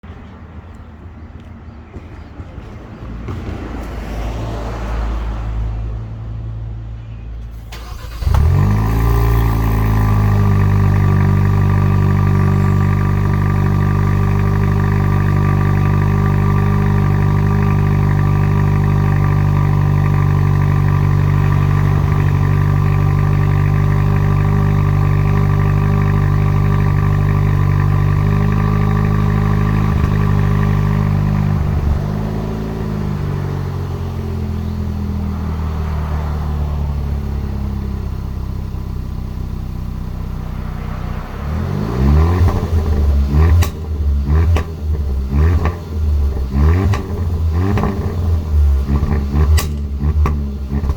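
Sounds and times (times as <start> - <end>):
car engine starting and idling: 4.4 - 50.9.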